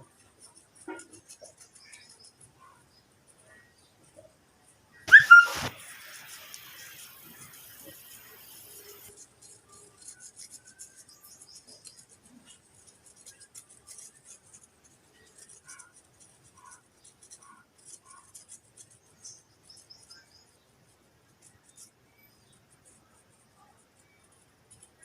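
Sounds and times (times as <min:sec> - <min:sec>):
scratching and scraping strokes: 0:00.0 - 0:04.3, 0:05.0 - 0:20.5
short squeaks: 0:05.1 - 0:05.8.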